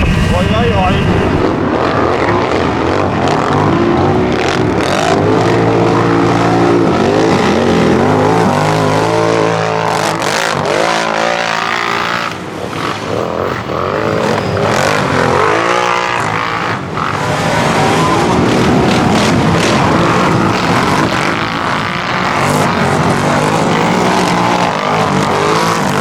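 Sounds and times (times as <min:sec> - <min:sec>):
engines revving hard: 0:00.0 - 0:26.0.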